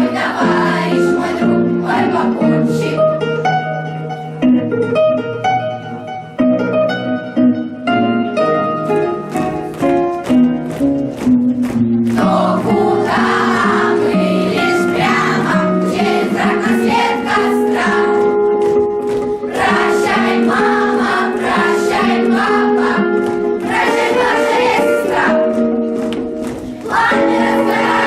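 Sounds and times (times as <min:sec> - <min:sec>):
children's choir singing: 0:00.0 - 0:03.4, 0:12.1 - 0:18.5, 0:19.4 - 0:25.8, 0:26.6 - 0:28.0
instrumental accompaniment: 0:00.0 - 0:28.0.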